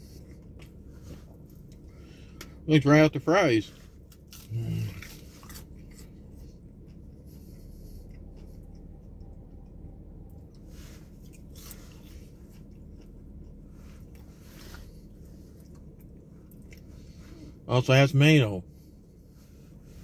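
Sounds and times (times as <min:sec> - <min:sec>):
low hum inside car: 0:00.0 - 0:20.0
man chewing fries: 0:00.0 - 0:20.0.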